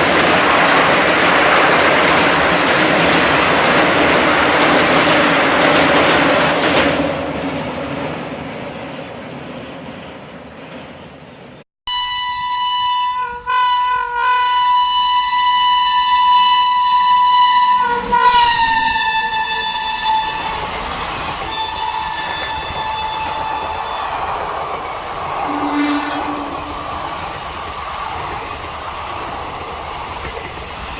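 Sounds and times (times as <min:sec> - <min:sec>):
roar of passing train: 0:00.0 - 0:11.6, 0:13.2 - 0:30.9
locomotive air horn: 0:11.8 - 0:20.7, 0:21.5 - 0:24.2, 0:25.4 - 0:26.9.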